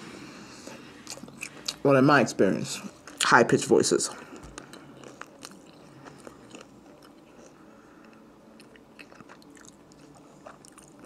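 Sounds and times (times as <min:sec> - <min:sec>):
person chewing: 0:00.6 - 0:01.8, 0:04.2 - 0:11.0.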